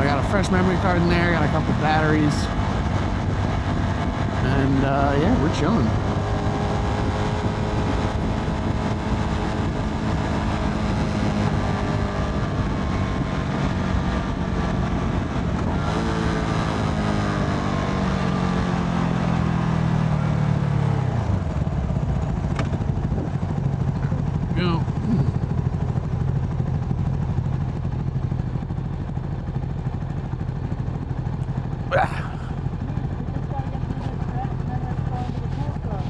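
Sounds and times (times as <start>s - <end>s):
motorcycle engine: 4.0s - 12.6s.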